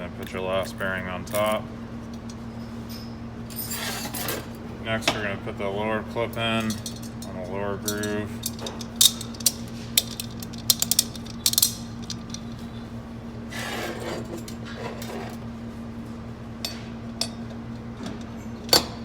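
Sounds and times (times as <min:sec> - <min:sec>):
steady low hum: 0:00.0 - 0:19.0
metal clicks and clinks: 0:07.9 - 0:12.5.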